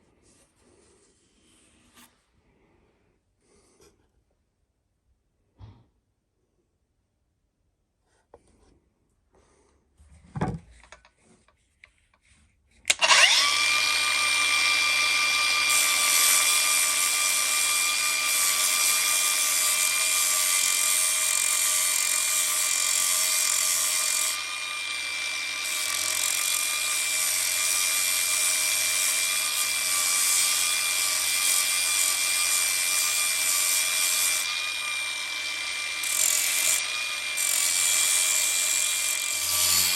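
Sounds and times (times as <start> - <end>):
power tool grinding metal: 12.9 - 39.9.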